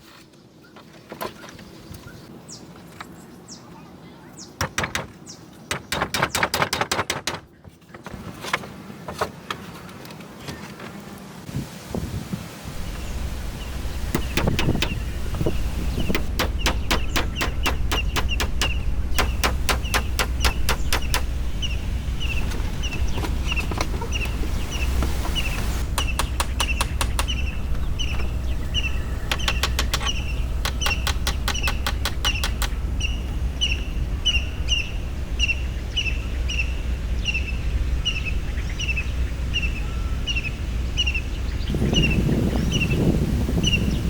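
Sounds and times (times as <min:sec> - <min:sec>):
steady low rumble: 0:12.6 - 0:44.0
bird chirping: 0:12.8 - 0:44.0
rapid clicking: 0:16.1 - 0:21.3.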